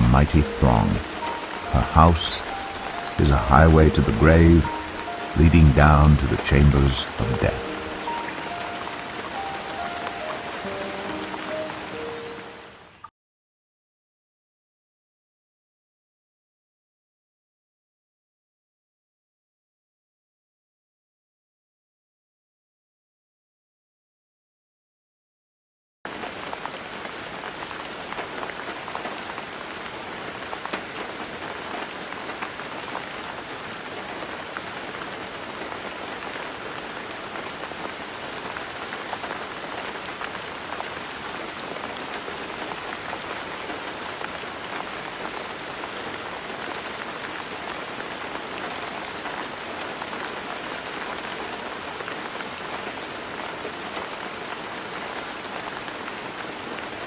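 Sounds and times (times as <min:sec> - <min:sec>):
raindrops pattering on a surface: 0:00.2 - 0:12.0, 0:26.1 - 0:57.0.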